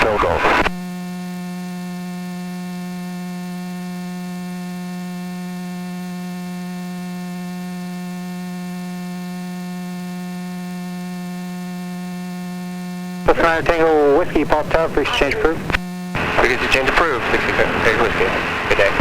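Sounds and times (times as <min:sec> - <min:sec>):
electrical hum on intercom: 0:00.0 - 0:01.3, 0:05.8 - 0:19.0.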